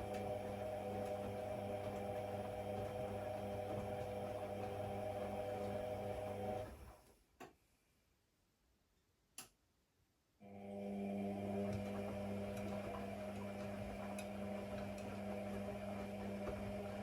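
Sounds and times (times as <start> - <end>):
washing machine motor hum: 0.0 - 7.0, 10.4 - 17.0.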